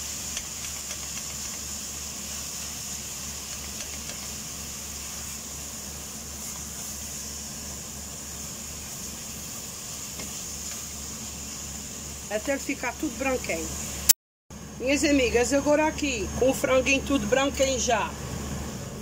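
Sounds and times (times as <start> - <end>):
spatula stirring: 0.0 - 7.3
chicken sizzling in a pot: 0.0 - 14.1.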